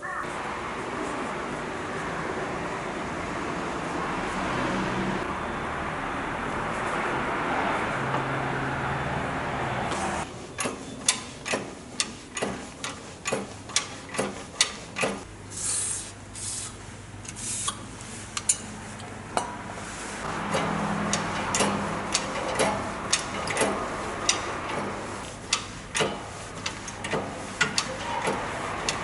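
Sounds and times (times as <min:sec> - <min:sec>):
clicks and knocks on metal parts: 0:10.6 - 0:15.3, 0:25.5 - 0:29.0
short hissing rubs: 0:15.5 - 0:18.2.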